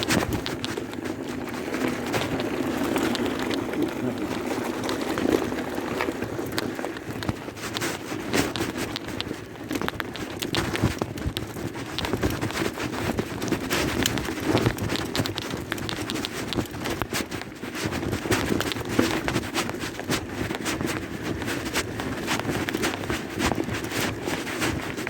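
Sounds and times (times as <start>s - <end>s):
bicycle tyres crunching on gravel: 0.0s - 25.0s
bike rattling and knocking: 0.0s - 25.0s.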